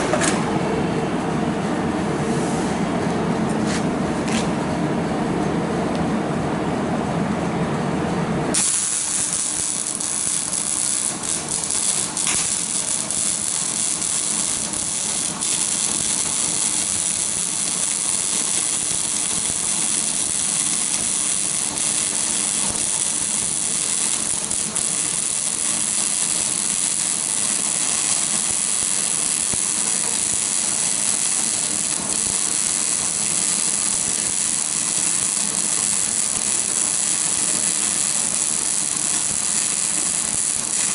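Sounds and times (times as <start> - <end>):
welding arc hissing and crackling: 8.6 - 40.9.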